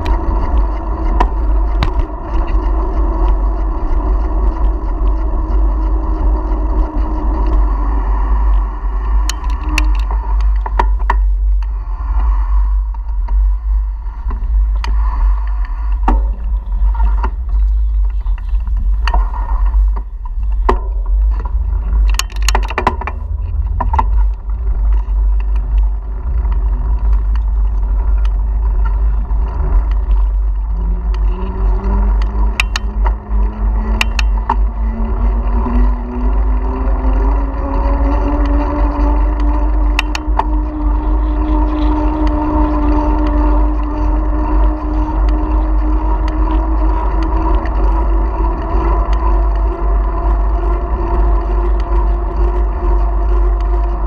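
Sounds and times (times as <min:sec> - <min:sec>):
engine hum rising in pitch: 0:00.0 - 0:54.0
wind buffeting microphone: 0:00.0 - 0:54.0
clicks and rattles: 0:19.9 - 0:36.3.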